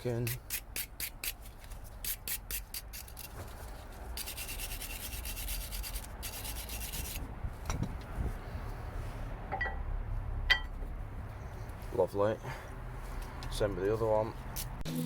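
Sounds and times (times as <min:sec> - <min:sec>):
wire brush scrubbing brake pads: 0:00.0 - 0:07.3.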